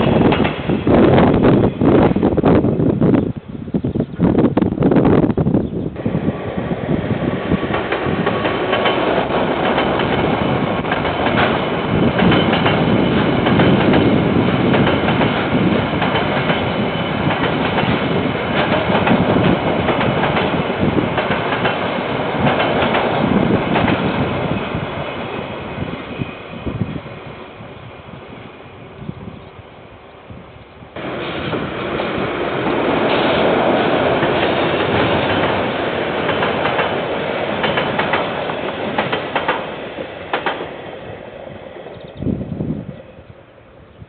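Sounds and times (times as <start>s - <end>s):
train passing: 0.0s - 44.0s
wheels clattering over rails: 7.7s - 24.2s, 31.0s - 40.7s.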